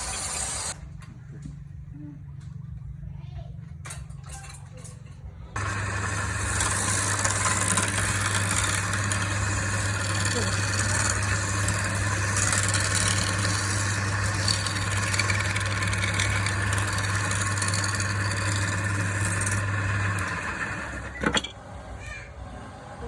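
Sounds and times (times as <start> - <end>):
woodworking machine motor humming: 0.0 - 0.8, 5.6 - 21.8.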